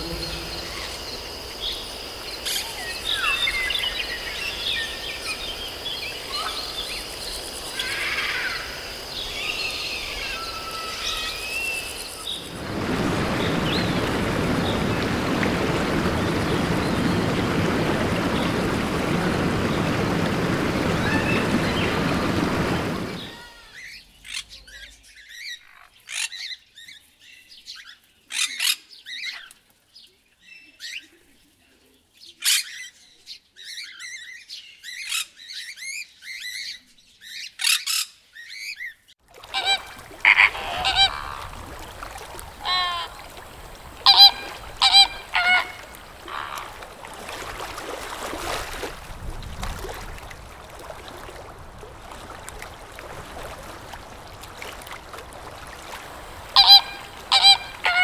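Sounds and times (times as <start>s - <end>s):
steady background hiss: 0.0s - 23.4s, 39.7s - 49.1s
flamingos honking: 0.0s - 23.6s, 39.4s - 47.8s, 51.0s - 58.0s
shrill parrot calls: 39.6s - 41.4s, 42.6s - 43.1s, 44.1s - 46.6s, 56.6s - 58.0s.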